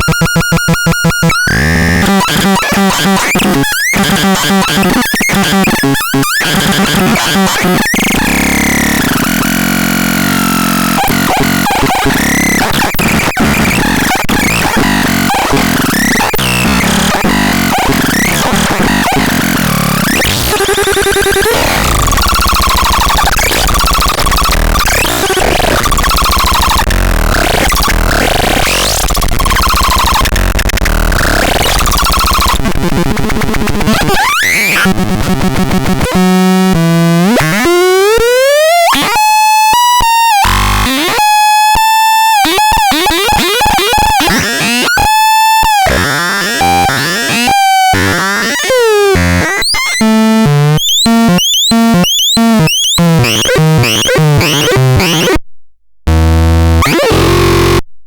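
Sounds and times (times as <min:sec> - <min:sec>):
synthesized electronic sound effects: 0:06.4 - 0:30.4, 0:42.4 - 0:55.4, 0:56.1 - 0:57.8
stuttering electronic beeps: 0:10.8 - 0:32.6, 0:49.6 - 0:55.4.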